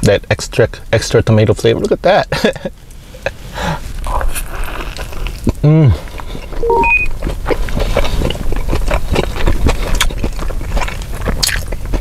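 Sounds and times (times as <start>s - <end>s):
wet chewing and mouth smacking: 3.9s - 12.0s.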